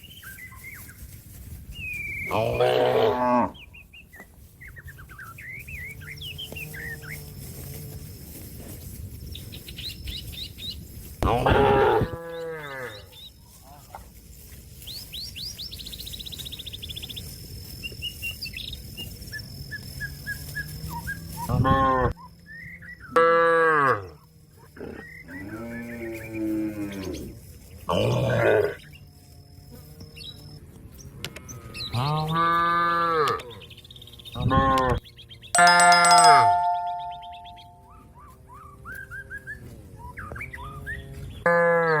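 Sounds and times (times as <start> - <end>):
birds chirping: 0.0 - 7.5, 8.1 - 13.8, 33.4 - 41.5
cow mooing loudly: 2.3 - 3.6, 11.2 - 13.0.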